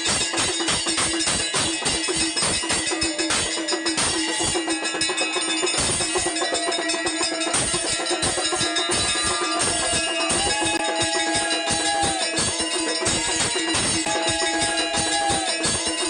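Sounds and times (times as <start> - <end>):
dhol drumming: 0.0 - 16.0
jangling metal percussion: 0.0 - 16.0
long held tones: 6.4 - 16.0.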